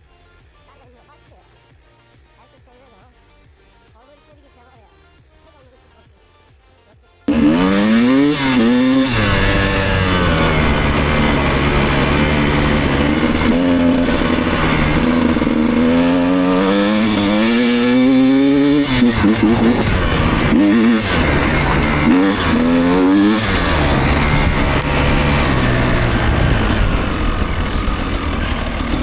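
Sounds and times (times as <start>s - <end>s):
motorcycle engine revving: 7.3s - 29.0s.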